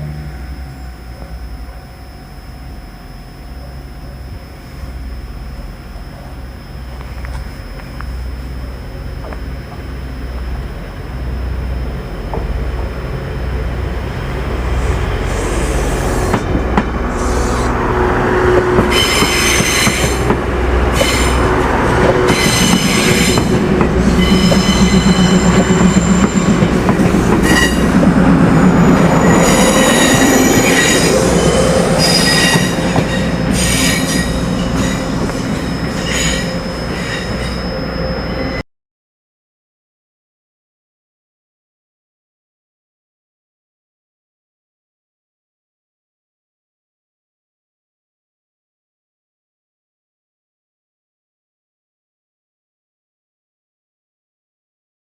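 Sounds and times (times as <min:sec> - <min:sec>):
train rumble: 0:00.0 - 0:38.6
wheels squealing on rails: 0:17.0 - 0:38.6.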